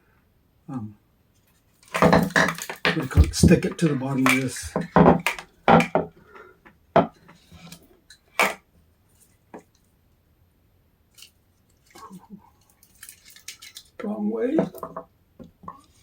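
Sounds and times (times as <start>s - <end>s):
hard objects knocking and clattering: 1.9s - 6.1s, 14.6s - 15.1s.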